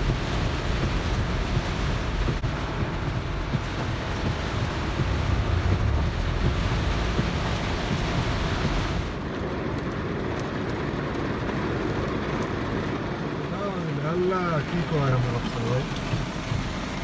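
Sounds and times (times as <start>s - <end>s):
heavy rain hissing: 0.0s - 9.2s, 13.4s - 17.0s
low rumble: 0.0s - 13.4s.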